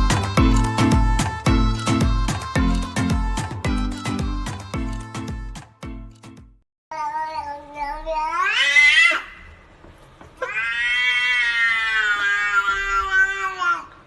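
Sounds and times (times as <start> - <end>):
cat yowling: 10.4 - 13.9.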